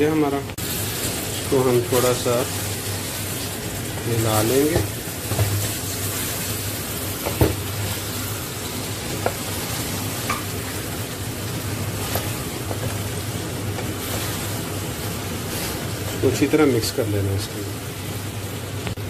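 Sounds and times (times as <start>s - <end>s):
chicken sizzling in a pan: 0.6s - 19.0s
wooden spatula stirring: 1.8s - 16.6s.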